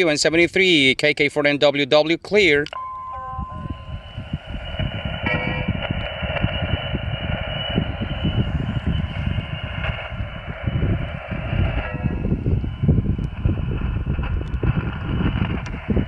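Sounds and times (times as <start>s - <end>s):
whistling heterodyne tones: 2.8s - 13.8s
wind rumble on microphone: 3.0s - 16.0s.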